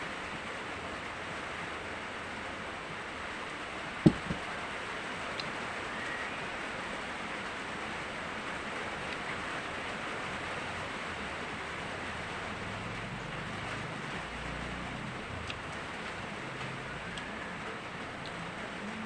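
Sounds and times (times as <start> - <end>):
heavy rain hissing: 4.3 - 19.0.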